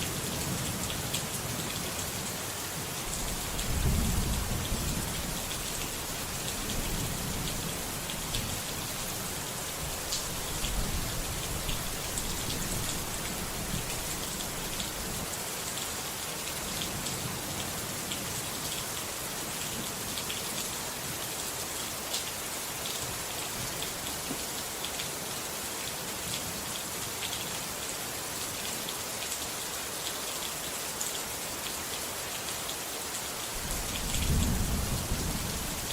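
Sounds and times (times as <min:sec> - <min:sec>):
rain drops ticking: 0:00.1 - 0:15.0, 0:33.5 - 0:35.9
low rumble of thunder: 0:03.1 - 0:08.6, 0:33.6 - 0:35.9.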